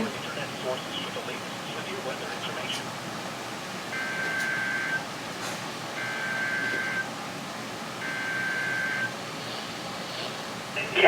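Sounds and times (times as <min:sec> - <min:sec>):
radio hiss: 0:09.4 - 0:11.0.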